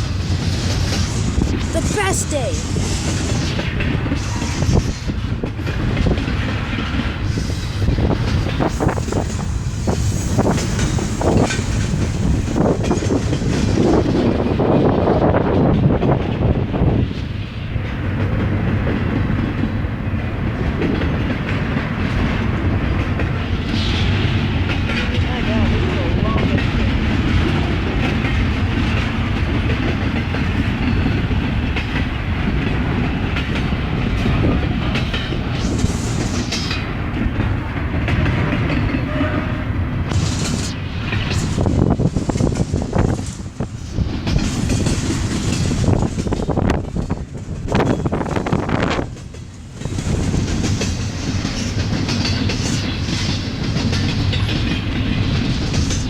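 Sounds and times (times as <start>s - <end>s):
freight train rumbling past: 0.0s - 56.0s
wheels clicking over rail joints: 40.1s - 56.0s.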